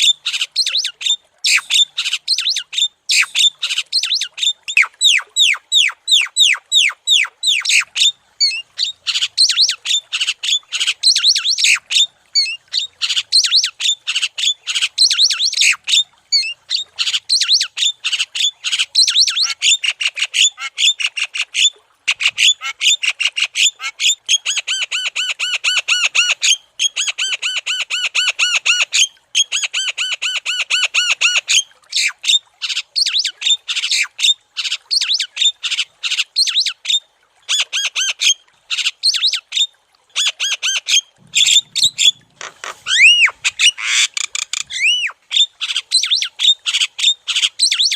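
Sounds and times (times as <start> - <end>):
myna bird calling: 0.0 - 8.1, 40.2 - 47.9.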